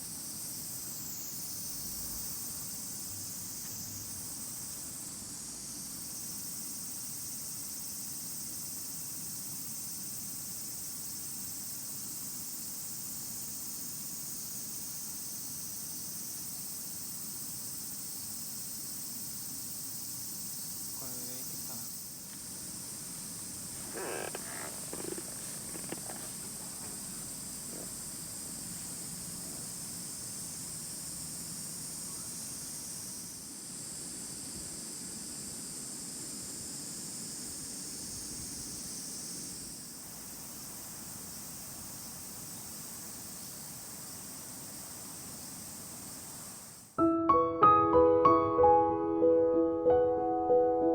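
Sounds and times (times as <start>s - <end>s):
insects chorus: 0.0s - 47.0s
short clatters: 23.8s - 27.0s.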